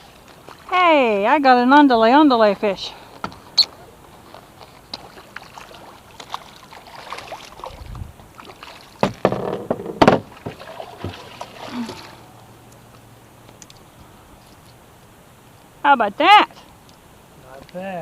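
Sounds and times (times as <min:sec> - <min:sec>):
water splashing: 0:00.0 - 0:13.9
knocks against boat: 0:09.0 - 0:11.3.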